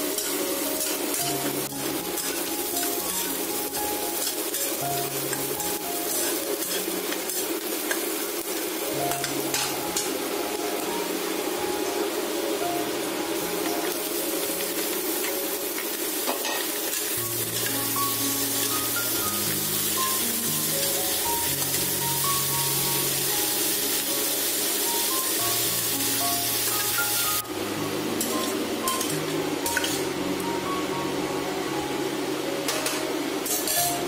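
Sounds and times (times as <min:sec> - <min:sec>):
chicken sizzling in hot oil: 0:00.0 - 0:30.2
background music with melody: 0:00.0 - 0:34.0
metal spatula stirring in wok: 0:00.1 - 0:08.1.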